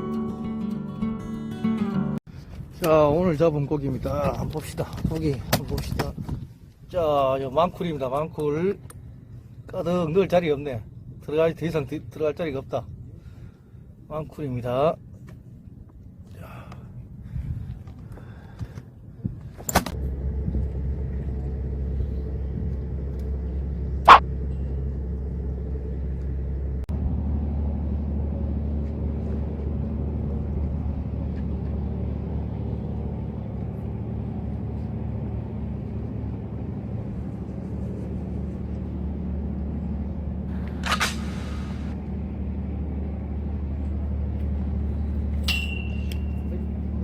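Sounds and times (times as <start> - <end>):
engine running with low hum: 0.0 - 47.0.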